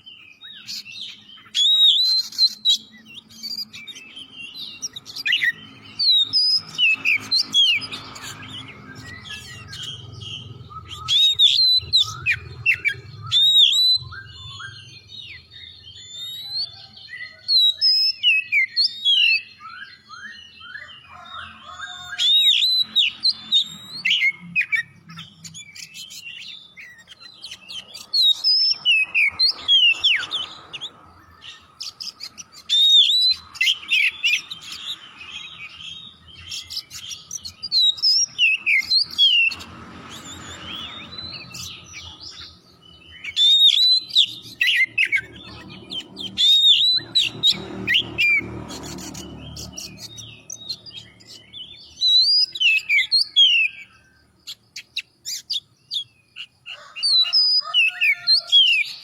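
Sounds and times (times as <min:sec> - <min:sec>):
bird singing whistled phrases: 0:00.0 - 0:10.0, 0:10.7 - 0:21.3, 0:31.4 - 0:34.7, 0:40.3 - 0:49.2, 0:49.8 - 0:56.2.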